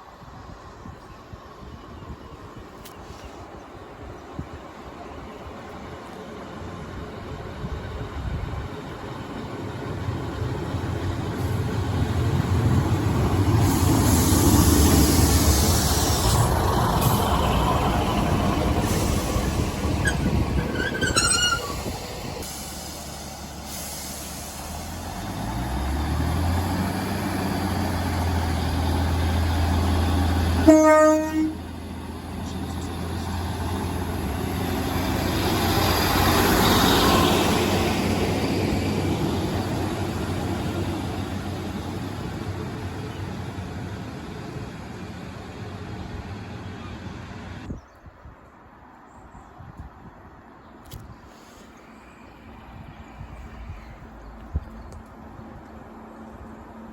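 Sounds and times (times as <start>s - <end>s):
diesel train rumbling: 0.0s - 47.9s
train horn blast: 30.6s - 31.7s.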